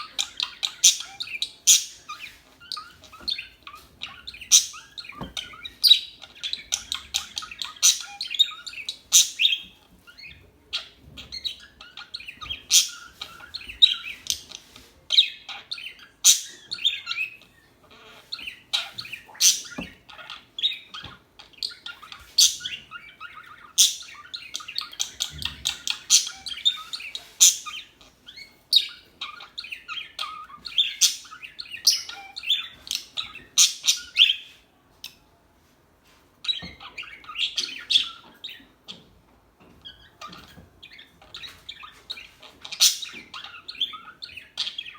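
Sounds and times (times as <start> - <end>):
parakeets chirping: 0.0 - 34.6, 36.4 - 44.9.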